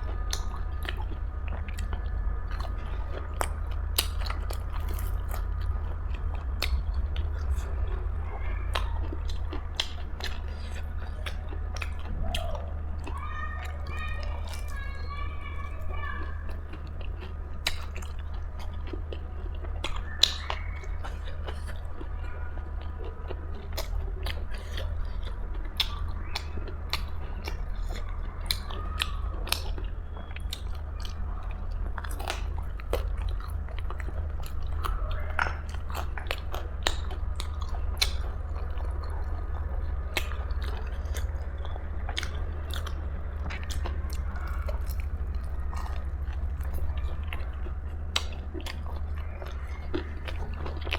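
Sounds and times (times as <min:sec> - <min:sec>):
chewing and crunching food: 0:00.0 - 0:50.9
steady low hum: 0:00.0 - 0:50.9.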